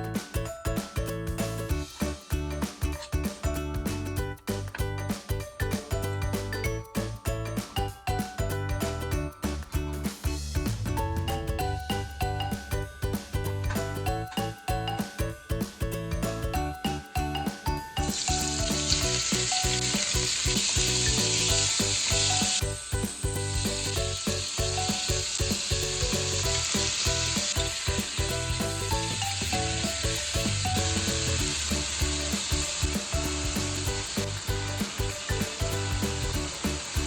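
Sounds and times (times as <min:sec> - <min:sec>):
light background music: 0:00.0 - 0:37.0
food sizzling in a pan: 0:18.1 - 0:23.2.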